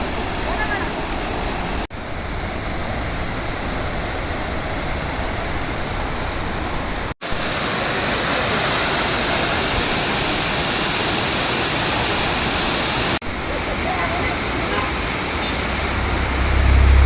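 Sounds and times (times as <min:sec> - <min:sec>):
waterfall pouring: 0:07.2 - 0:17.0.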